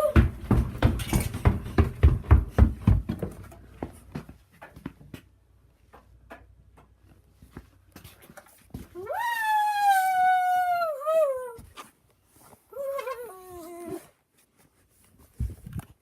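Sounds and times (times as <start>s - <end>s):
quick footsteps thumping: 0.0s - 5.3s.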